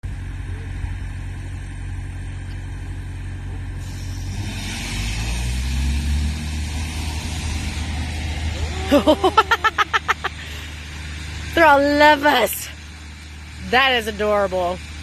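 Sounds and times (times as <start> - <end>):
low engine rumble: 0.0 - 15.0
rushing hiss: 3.8 - 11.5.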